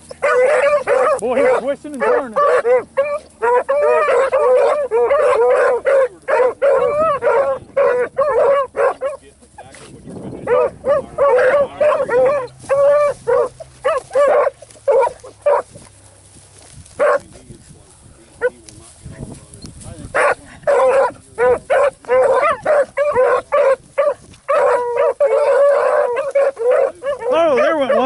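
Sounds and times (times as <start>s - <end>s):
hounds baying: 0.0s - 17.4s, 18.2s - 18.7s, 20.0s - 28.0s.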